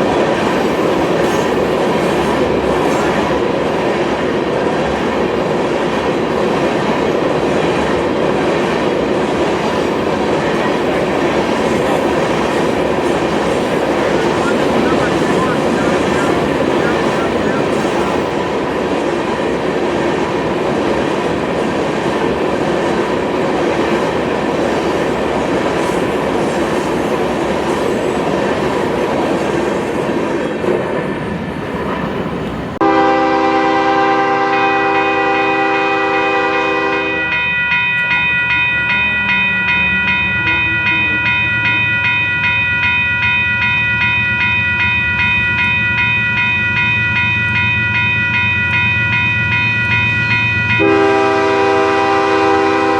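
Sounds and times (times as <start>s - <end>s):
freight train wheels on rails: 0.0s - 52.9s
locomotive air horn chord: 13.7s - 18.3s, 32.8s - 37.4s, 50.8s - 52.9s.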